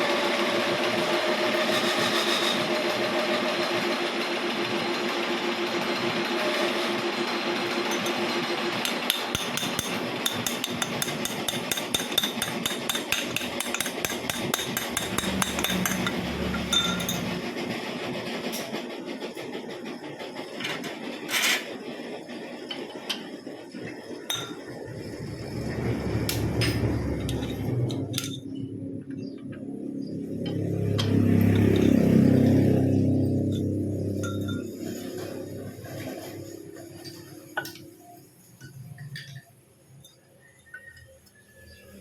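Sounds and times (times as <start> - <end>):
steady mechanical noise: 0.0 - 42.0
metal clicking and tapping: 8.8 - 17.3.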